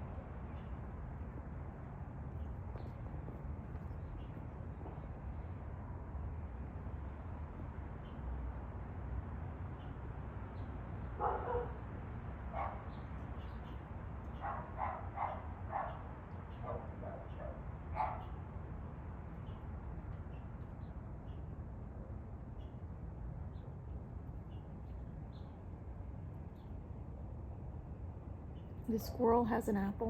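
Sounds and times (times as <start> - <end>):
dog barking: 11.2 - 11.8, 12.5 - 12.9, 14.4 - 18.4.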